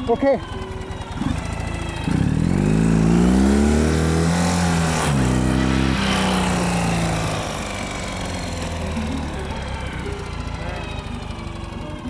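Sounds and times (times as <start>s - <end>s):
vehicle engine revving: 0.7s - 12.0s.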